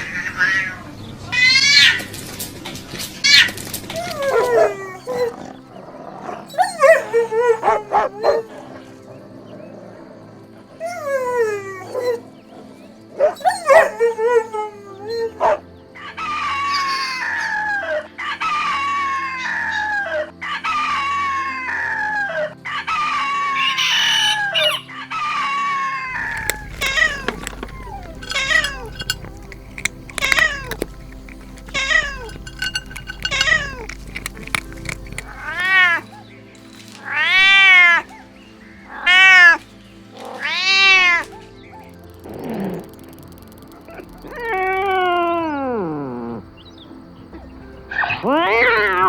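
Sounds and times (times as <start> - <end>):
kittens meowing: 26.2 - 36.0, 48.0 - 49.0.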